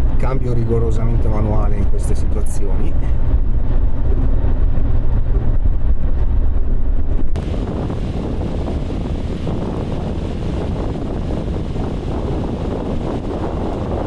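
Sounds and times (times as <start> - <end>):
hissing noise: 7.4 - 14.0
vehicle engine droning: 7.4 - 14.0.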